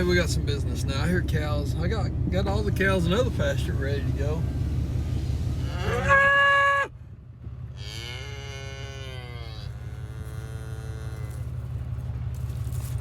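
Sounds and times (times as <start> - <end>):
steady low rumble: 0.0 - 13.0
cattle mooing: 5.5 - 6.3, 7.7 - 11.8.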